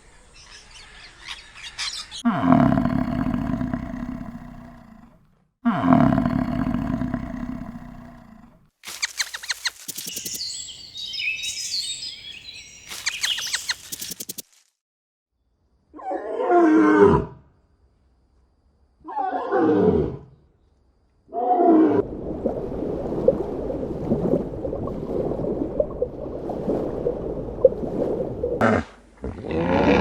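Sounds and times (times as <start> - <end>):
scattered clicks: 8.8 - 10.5, 12.9 - 14.6.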